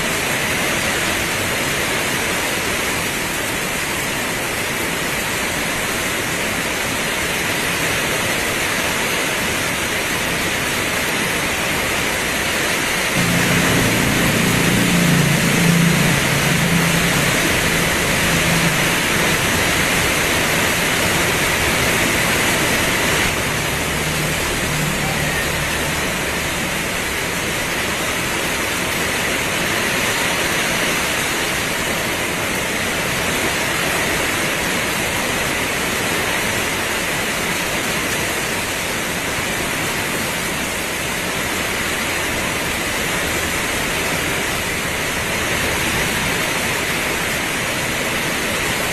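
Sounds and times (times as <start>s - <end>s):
heavy rain pouring: 0.0s - 48.9s
low hum: 13.2s - 28.3s.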